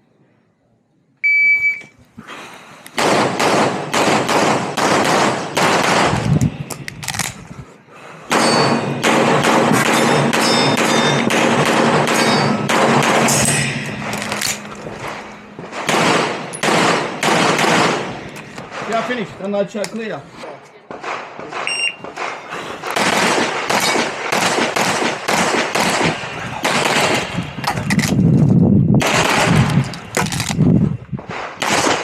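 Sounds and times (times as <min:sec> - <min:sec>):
shot timer beep: 0:01.2 - 0:01.9, 0:21.7 - 0:22.0
rapid pistol fire: 0:03.0 - 0:06.3, 0:08.3 - 0:13.5, 0:15.6 - 0:19.0, 0:21.0 - 0:27.4, 0:29.0 - 0:29.9, 0:31.4 - 0:32.0.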